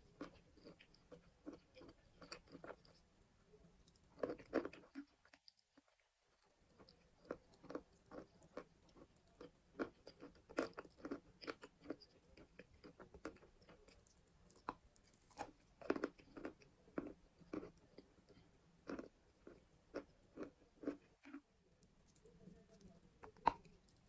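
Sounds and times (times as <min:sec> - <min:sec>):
chalk crunching while chewed: 0:00.2 - 0:03.0, 0:06.7 - 0:21.4.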